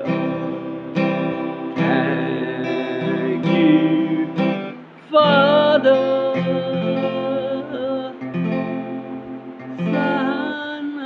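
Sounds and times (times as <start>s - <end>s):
acoustic guitar strumming: 0.0s - 11.0s
person singing slowly: 0.0s - 11.0s.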